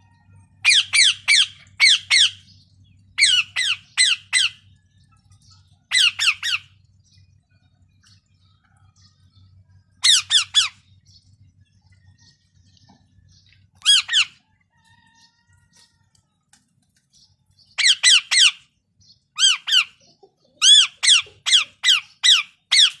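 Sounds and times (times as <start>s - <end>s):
parrot squawking: 0.6s - 2.4s, 3.2s - 4.6s, 5.9s - 6.7s, 10.0s - 10.8s, 13.8s - 14.4s, 17.8s - 18.6s, 19.4s - 20.0s, 20.6s - 23.0s.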